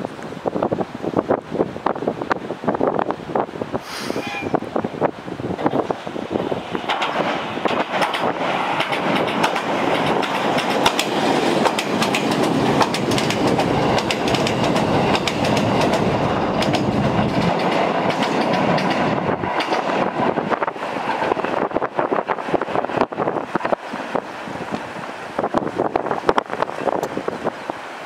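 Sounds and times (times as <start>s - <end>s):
train rushing over bridge: 0.4s - 28.0s
wheels clattering over rails: 6.7s - 20.4s.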